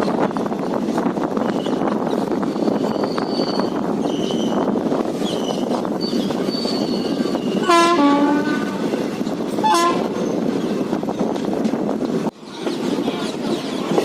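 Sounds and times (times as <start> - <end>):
rumble of moving train: 0.0 - 14.0
train horn blasts: 7.6 - 8.9, 9.6 - 10.2.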